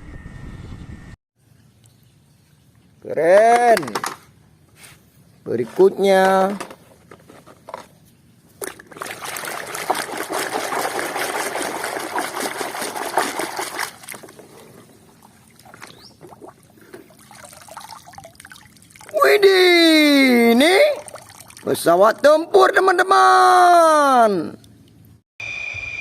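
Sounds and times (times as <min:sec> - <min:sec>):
water pouring and splashing: 0:08.6 - 0:19.4, 0:20.6 - 0:21.9
water dribbling: 0:08.6 - 0:22.0.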